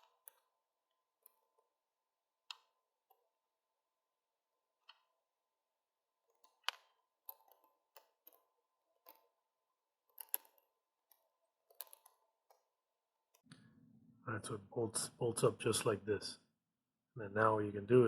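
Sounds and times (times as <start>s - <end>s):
plastic parts clicking and knocking: 0.0s - 1.8s, 2.4s - 3.4s, 6.2s - 13.6s.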